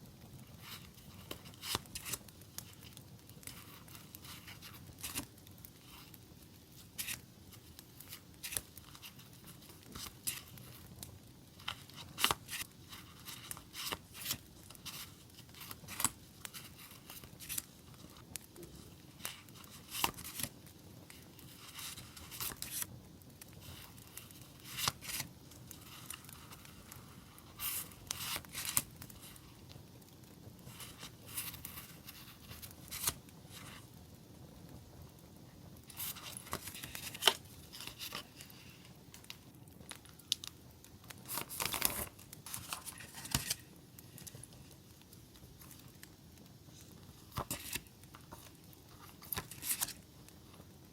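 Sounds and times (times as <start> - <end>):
paper rustling and crinkling: 0.4 - 29.5, 30.6 - 33.8, 35.9 - 40.4, 41.2 - 44.8, 46.7 - 50.6
sharp paper crackles: 0.6 - 6.2, 6.8 - 20.5, 21.1 - 22.9, 23.5 - 29.5, 30.6 - 33.8, 35.9 - 39.4, 41.2 - 44.7, 46.7 - 50.0.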